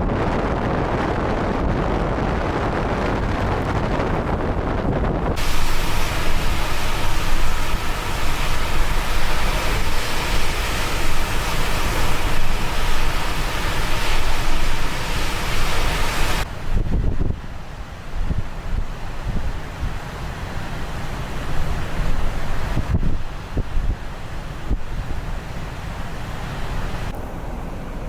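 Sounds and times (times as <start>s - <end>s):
rushing wind and surf: 0.0s - 28.0s
wind buffeting microphone: 0.0s - 28.0s.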